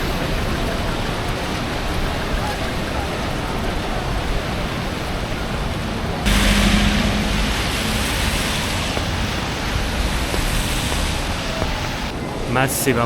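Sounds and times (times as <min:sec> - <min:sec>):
steady rain: 0:00.0 - 0:12.1
low vehicle hum: 0:06.0 - 0:12.1.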